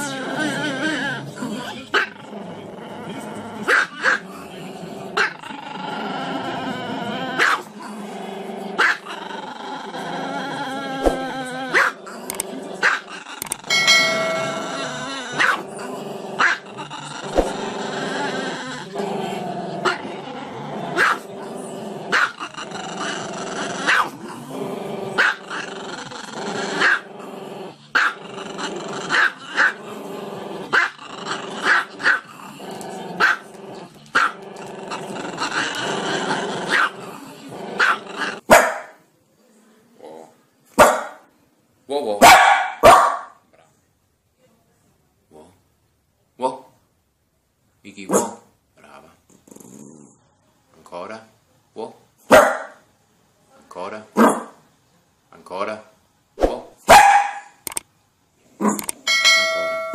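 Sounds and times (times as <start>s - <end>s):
dog wavering vocal: 0.0s - 2.2s, 9.8s - 24.1s
small dog yapping: 56.9s - 57.5s.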